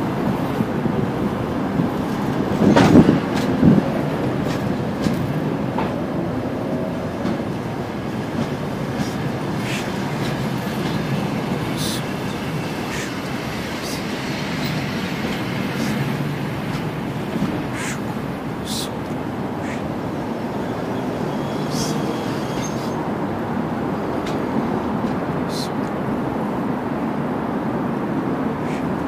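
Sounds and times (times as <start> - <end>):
train wheels rumbling on rails: 0.0 - 29.0
clicks over rail joints: 1.8 - 6.1, 7.2 - 7.7, 24.1 - 26.0.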